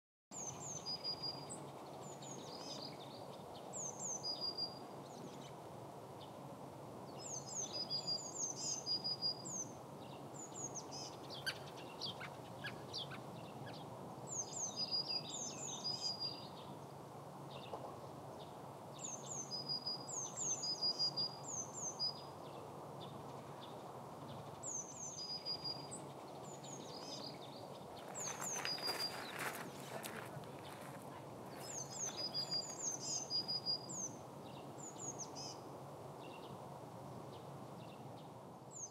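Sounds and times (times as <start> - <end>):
songbirds whistling: 19.0 - 22.3, 24.6 - 30.9, 31.5 - 34.2
footsteps on gravel: 28.0 - 32.8.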